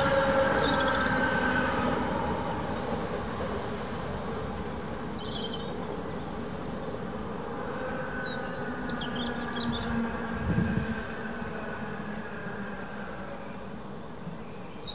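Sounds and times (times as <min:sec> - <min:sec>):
electric train rumbling: 0:00.0 - 0:14.9
small birds chirping: 0:05.0 - 0:07.4.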